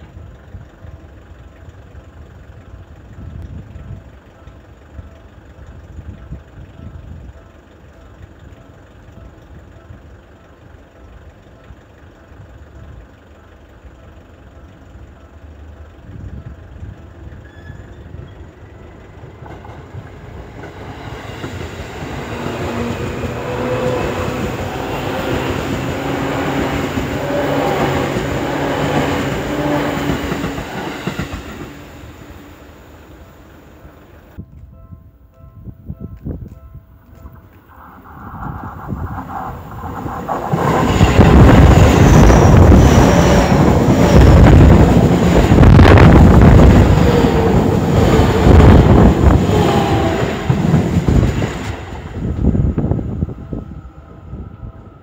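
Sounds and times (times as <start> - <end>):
electric train passing: 0.0 - 55.0
wind rumbling on microphone: 34.4 - 55.0.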